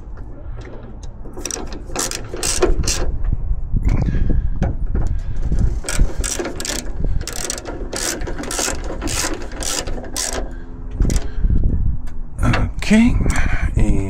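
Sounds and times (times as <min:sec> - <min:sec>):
ratchet wrench clicking: 0:01.4 - 0:03.1, 0:05.6 - 0:11.3.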